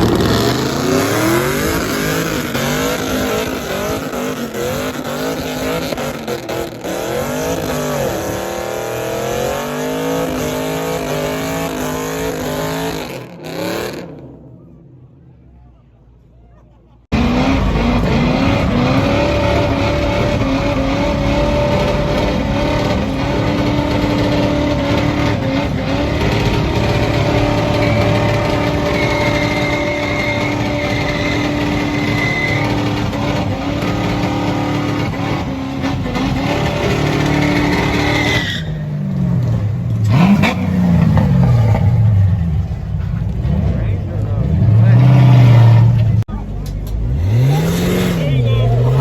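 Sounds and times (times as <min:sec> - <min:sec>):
car engine revving: 0:00.0 - 0:15.4, 0:17.1 - 0:49.0
tyres squealing: 0:17.2 - 0:39.0.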